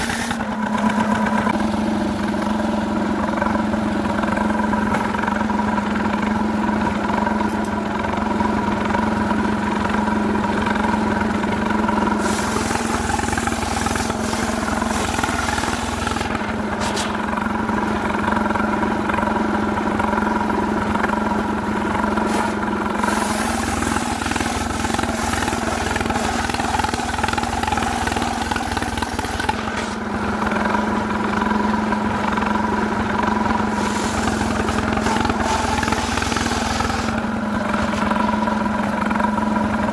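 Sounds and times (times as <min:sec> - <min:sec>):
chainsaw sawing wood: 0:00.0 - 0:01.4, 0:12.0 - 0:17.2, 0:22.1 - 0:30.2, 0:33.5 - 0:38.2
hissing: 0:12.2 - 0:16.3, 0:22.3 - 0:27.0, 0:33.7 - 0:37.2.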